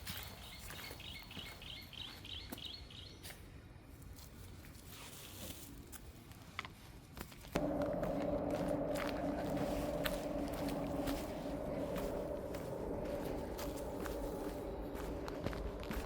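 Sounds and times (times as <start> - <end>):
faint footsteps: 7.2 - 16.0.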